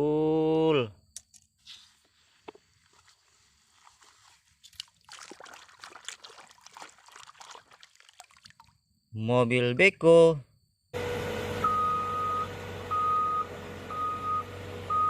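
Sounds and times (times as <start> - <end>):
rustling and scraping: 1.4 - 4.8.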